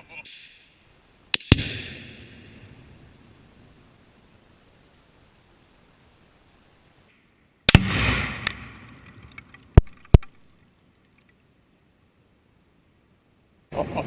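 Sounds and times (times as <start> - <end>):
sharp cracks: 1.3 - 3.7, 7.1 - 11.4
loud explosive blast: 1.4 - 3.0, 7.7 - 8.9.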